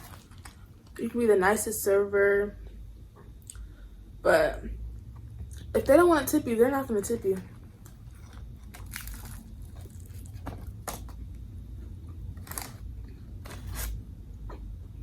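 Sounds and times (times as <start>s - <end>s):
person chewing crunchy food: 7.5s - 14.8s.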